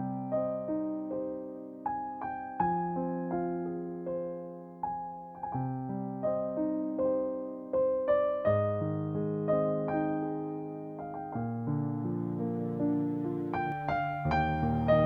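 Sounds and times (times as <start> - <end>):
slow soft piano music: 0.0 - 15.0.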